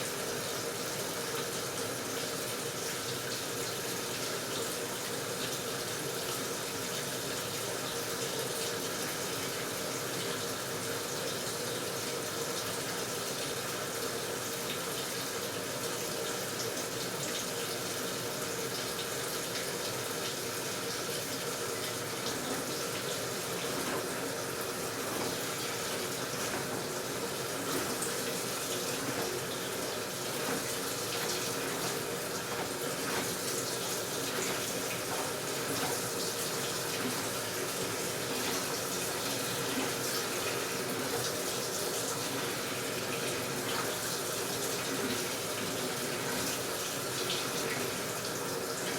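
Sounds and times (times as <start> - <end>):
water pouring into washing machine: 0.0 - 48.9.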